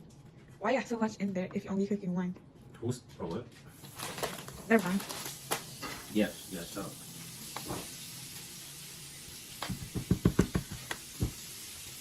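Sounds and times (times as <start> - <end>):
steak sizzling in oil: 4.9 - 12.0
utensil tapping frying pan: 9.6 - 11.5.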